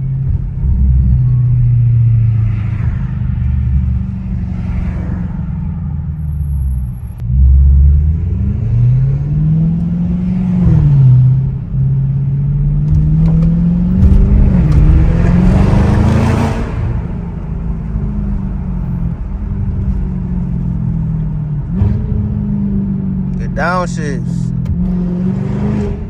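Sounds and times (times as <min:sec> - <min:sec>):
exhaust cracks: 0:00.0 - 0:04.5, 0:10.9 - 0:22.2
car exhaust accelerating: 0:00.0 - 0:26.0.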